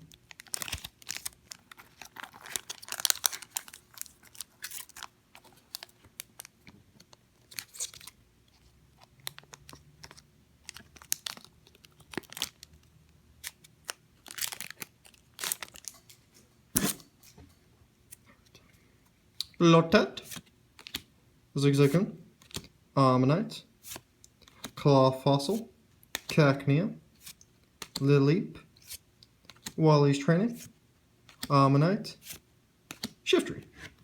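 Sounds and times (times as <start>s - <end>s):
foil packs tearing and crinkling: 0.3s - 6.5s, 13.4s - 15.9s.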